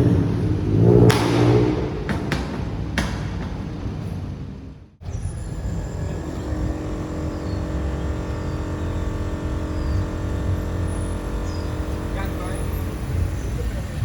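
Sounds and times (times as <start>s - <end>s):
car driving away: 0.0s - 14.0s
sharp exhaust pop: 0.7s - 4.0s.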